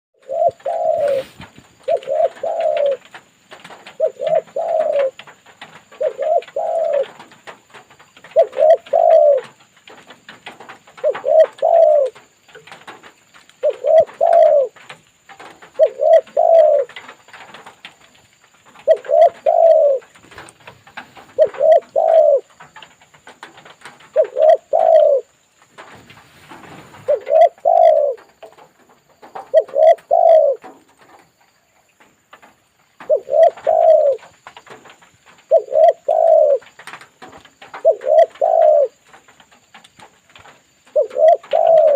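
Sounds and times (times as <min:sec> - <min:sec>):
dove cooing: 0:00.2 - 0:07.6, 0:08.2 - 0:09.7, 0:10.4 - 0:12.8, 0:13.6 - 0:17.8, 0:18.7 - 0:31.2, 0:33.0 - 0:39.2, 0:40.4 - 0:41.9.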